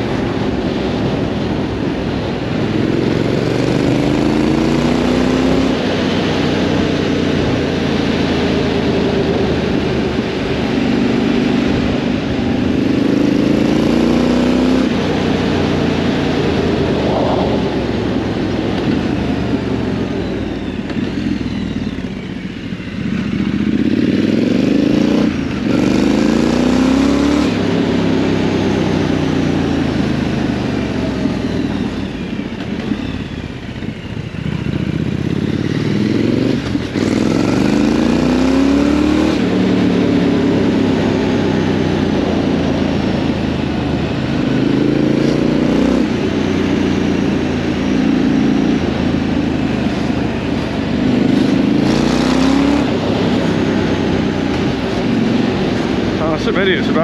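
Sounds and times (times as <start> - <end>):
wind noise: 0.0 - 22.3
motorcycle engine accelerating: 0.0 - 57.0.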